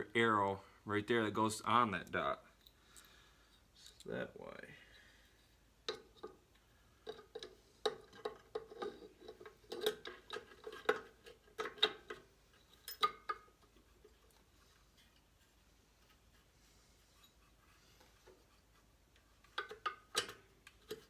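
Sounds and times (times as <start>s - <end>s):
metallic clicks of engine parts: 5.9s - 13.8s, 19.1s - 21.0s.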